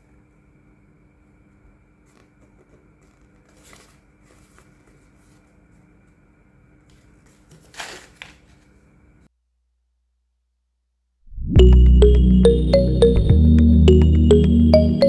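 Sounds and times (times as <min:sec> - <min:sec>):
packaging crinkle: 0:02.0 - 0:05.7, 0:06.9 - 0:08.9
packaging rustling: 0:02.0 - 0:06.2, 0:06.8 - 0:09.0.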